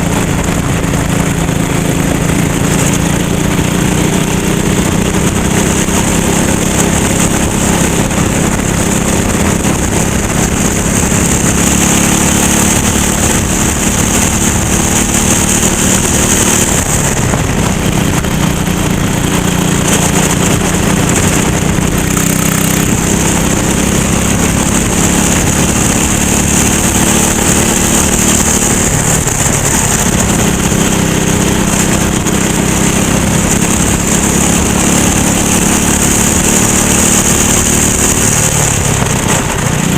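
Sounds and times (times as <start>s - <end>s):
racing kart engine at speed: 0.0s - 39.9s.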